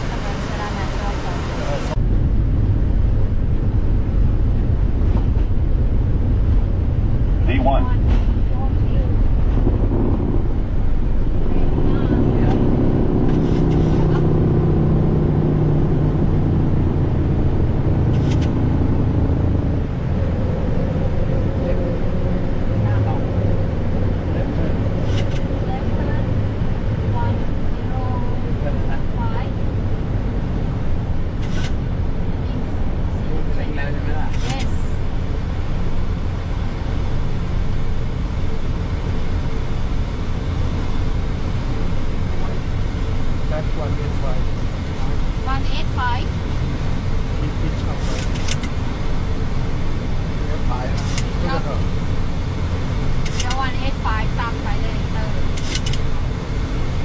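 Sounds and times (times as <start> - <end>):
rushing air: 0.0 - 28.6, 29.5 - 33.5, 46.3 - 53.5
jet engines roaring at takeoff: 0.0 - 57.0
low hum: 0.0 - 57.0.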